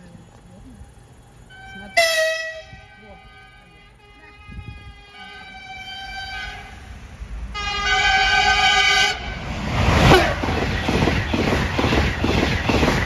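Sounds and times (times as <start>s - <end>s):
train horn: 1.5s - 6.9s, 7.5s - 9.4s, 10.0s - 11.4s
train rushing past: 5.2s - 13.0s
rhythmic wheel clatter: 9.6s - 13.0s.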